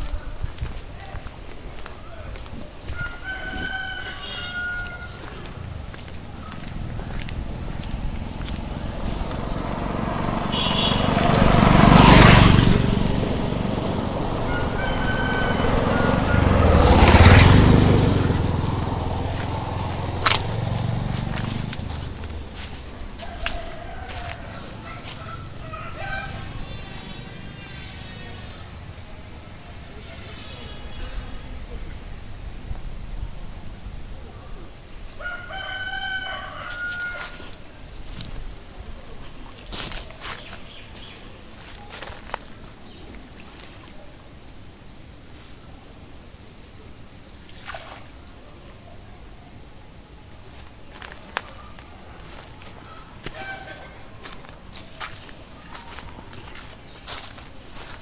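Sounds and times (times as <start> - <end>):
low outdoor rumble: 0.0 - 35.3, 36.2 - 58.0
motor vehicles passing: 0.0 - 58.0
rooster crowing: 2.8 - 28.4, 35.1 - 38.4, 50.6 - 58.0.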